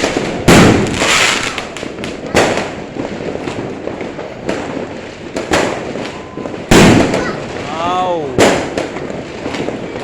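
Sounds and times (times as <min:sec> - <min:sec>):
firework bangs: 0:00.0 - 0:10.0
firework crackling: 0:00.0 - 0:10.0
small firework pops: 0:00.0 - 0:10.0.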